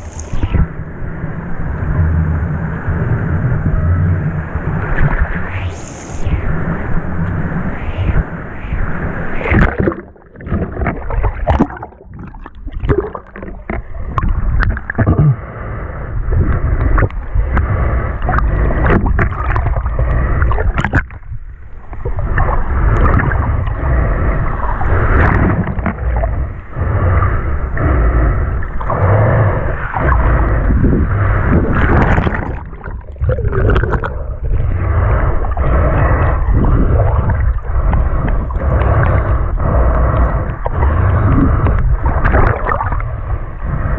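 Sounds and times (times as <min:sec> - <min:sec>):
seawater sloshing and gurgling: 0:09.3 - 0:15.4, 0:16.3 - 0:43.8.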